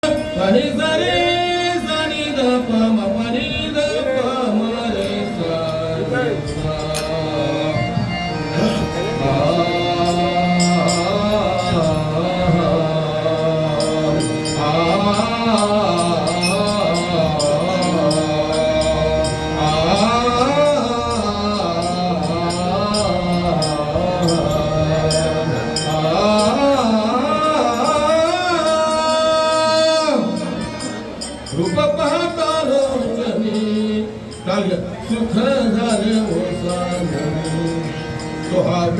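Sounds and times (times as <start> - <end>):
man singing wordless melody: 0.0 - 38.9.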